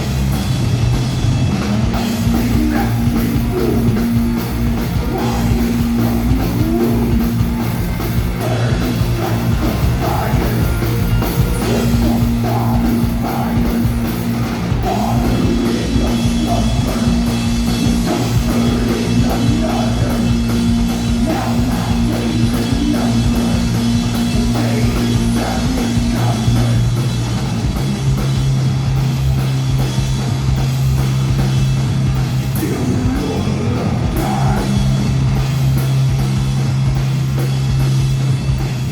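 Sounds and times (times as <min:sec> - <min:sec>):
drums hitting: 0:00.0 - 0:38.9
rock band playing live: 0:00.0 - 0:38.9
person singing: 0:01.8 - 0:07.5, 0:08.2 - 0:14.1, 0:14.7 - 0:26.9, 0:32.6 - 0:35.1.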